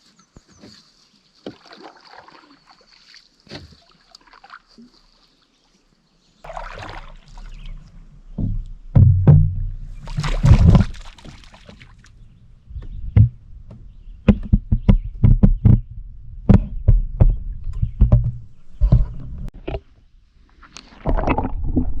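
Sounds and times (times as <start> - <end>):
rushing water splash: 6.4 - 7.9, 9.9 - 12.1
paddles knocking on canoe hull: 7.3 - 11.6, 12.8 - 19.2
low rumble: 7.6 - 10.9.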